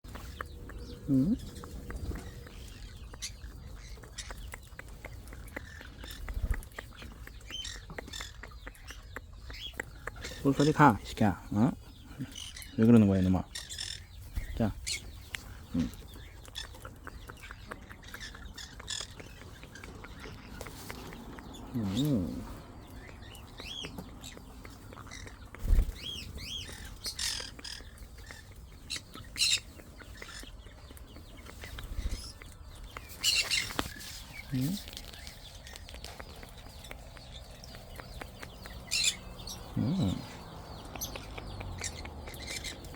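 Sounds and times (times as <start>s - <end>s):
parrots chirping and squawking: 0.1s - 42.9s
parrot chirping: 35.0s - 42.9s.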